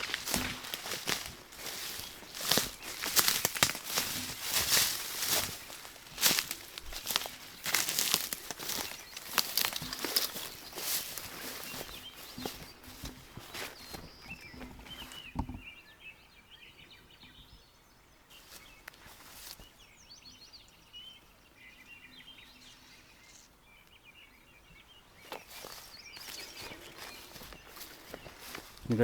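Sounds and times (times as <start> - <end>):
soft scuffs and rustles: 0.0 - 15.4, 18.3 - 19.8, 25.2 - 29.0
small birds chirping: 0.0 - 29.0.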